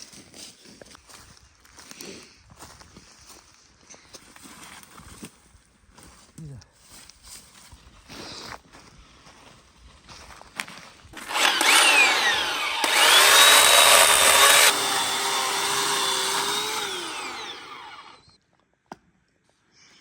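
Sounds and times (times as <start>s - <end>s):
small electric motor whine: 11.2s - 18.4s.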